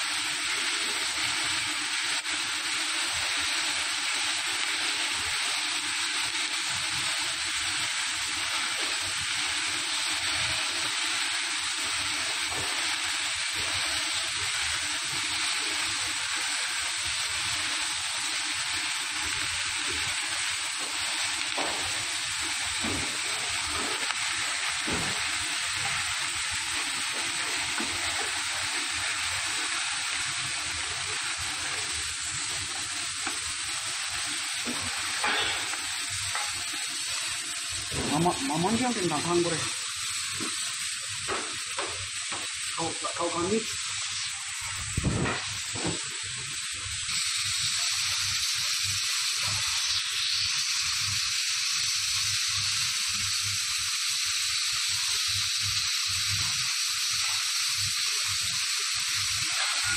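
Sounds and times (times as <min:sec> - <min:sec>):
vegetables sizzling: 0:00.0 - 0:59.9.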